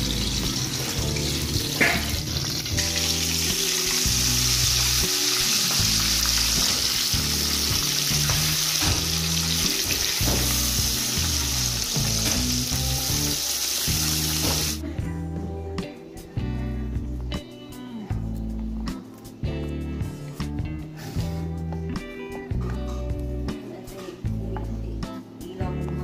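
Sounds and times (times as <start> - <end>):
meat deep-frying in oil: 0.0 - 14.8
background music: 0.0 - 26.0.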